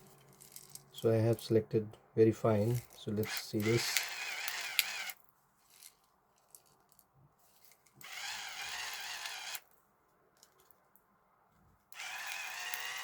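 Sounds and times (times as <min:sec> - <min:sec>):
pepper grinder motor whirring: 0:02.7 - 0:05.2, 0:08.0 - 0:09.6, 0:11.9 - 0:13.0.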